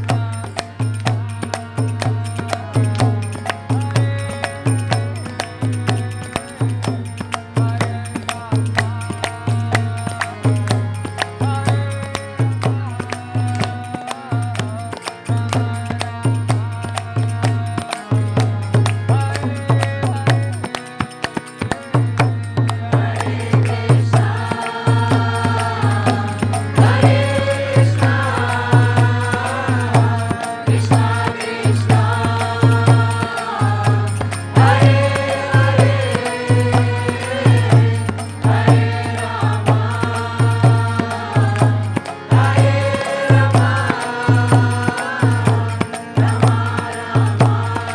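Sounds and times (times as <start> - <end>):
voices chanting a mantra: 0.0 - 20.7, 21.6 - 47.9
rhythmic accompaniment: 0.0 - 47.9.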